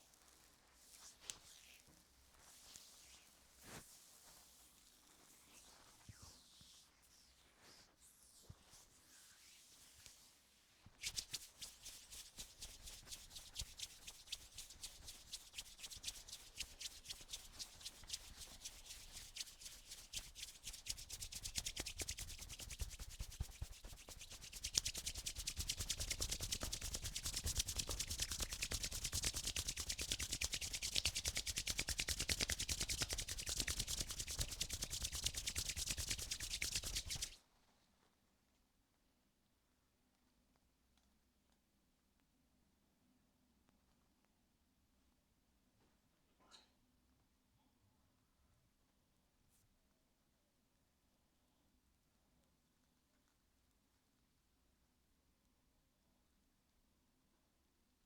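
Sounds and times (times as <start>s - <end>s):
hands rubbing: 11.0s - 37.4s.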